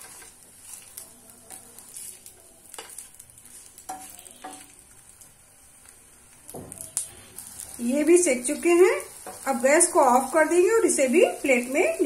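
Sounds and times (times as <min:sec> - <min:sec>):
spatula scraping pan: 0:00.0 - 0:04.8
patties sizzling in oil: 0:00.0 - 0:12.0.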